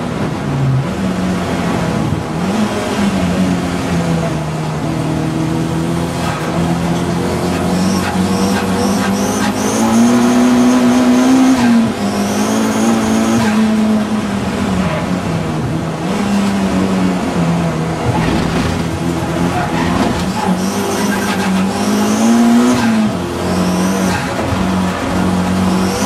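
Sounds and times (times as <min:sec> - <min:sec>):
race car engine running hard: 0:00.0 - 0:26.0
tyre squeal: 0:18.0 - 0:22.2.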